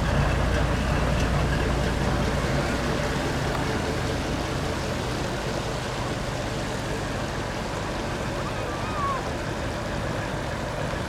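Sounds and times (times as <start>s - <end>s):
truck diesel engine rumbling: 0.0s - 7.6s.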